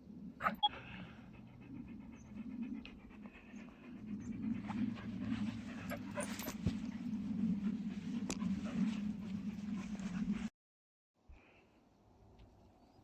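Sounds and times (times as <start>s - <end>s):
rapid rhythmic panting: 0.6s - 10.5s.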